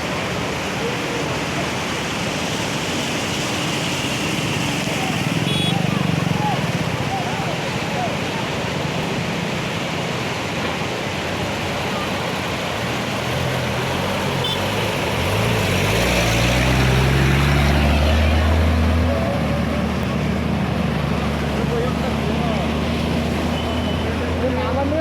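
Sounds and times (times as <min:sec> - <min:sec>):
vehicles driving through water: 0:00.0 - 0:25.0
deep engine rising in pitch: 0:15.3 - 0:23.5.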